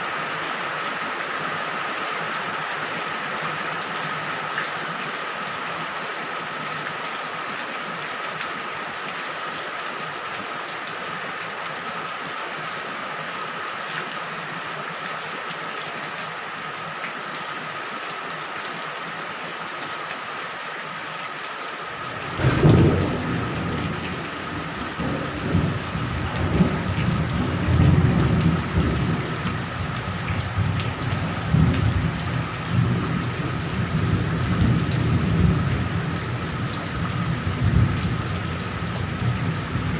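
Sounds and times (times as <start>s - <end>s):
steady rain hiss: 0.0s - 39.9s
loud thunderclap: 22.0s - 38.2s
thunder rumbling: 22.0s - 39.9s.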